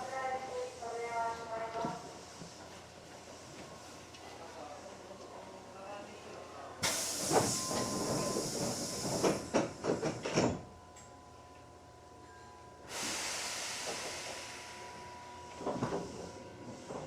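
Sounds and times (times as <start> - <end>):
train compressed air hiss: 6.8 - 10.3, 12.8 - 15.1.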